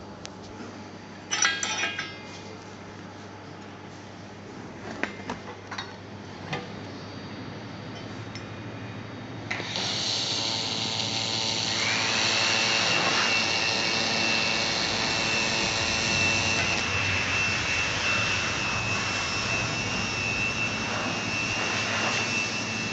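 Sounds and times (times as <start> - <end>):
high machine whine: 6.2 - 22.9
loud welding machine hiss: 9.5 - 22.9.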